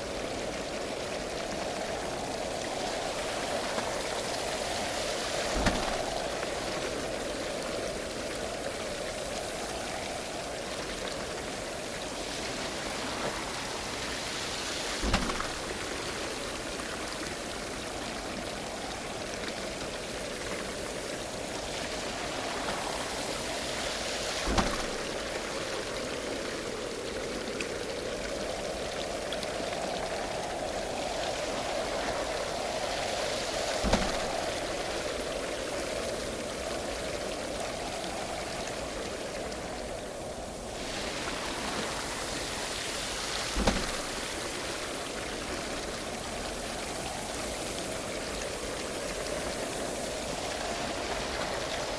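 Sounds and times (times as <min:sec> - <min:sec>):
water splashing at a waterwheel: 0:00.0 - 0:51.9
dull knocks: 0:15.0 - 0:15.6, 0:43.6 - 0:44.1.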